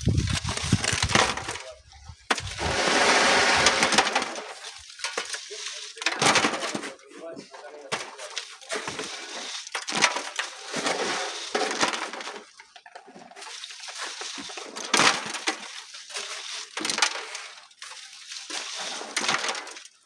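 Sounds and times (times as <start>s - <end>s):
stones clattering: 0.0s - 6.8s
sand and gravel scraping: 0.0s - 12.4s, 13.4s - 19.9s.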